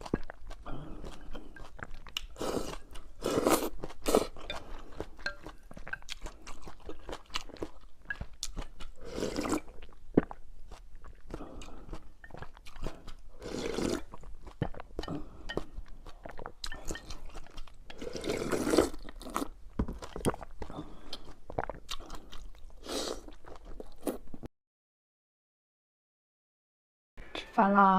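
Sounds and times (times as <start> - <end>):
wet chewing clicks: 0.0 - 24.4
slurping noodles: 2.2 - 5.1, 9.0 - 10.4, 11.3 - 19.5, 20.1 - 24.2.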